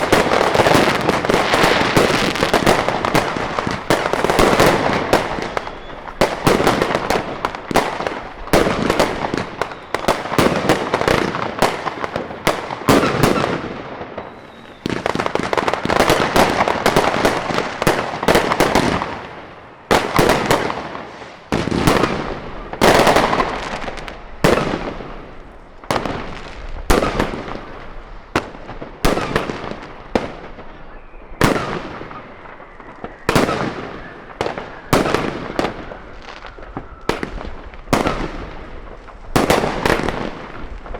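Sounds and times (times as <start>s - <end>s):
fireworks bangs with crackling: 0.0s - 40.9s.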